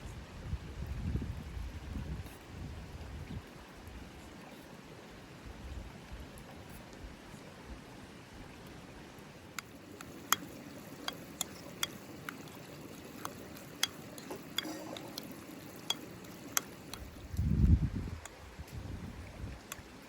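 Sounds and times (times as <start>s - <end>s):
food stirred in a pot: 9.6s - 17.3s
utensil knocking pot: 10.0s - 12.6s, 13.2s - 17.2s.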